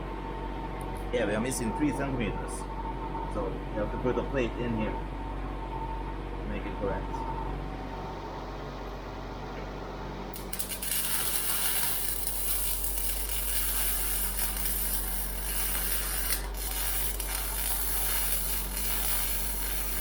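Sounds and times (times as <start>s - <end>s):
welding arc hissing: 10.4s - 20.0s.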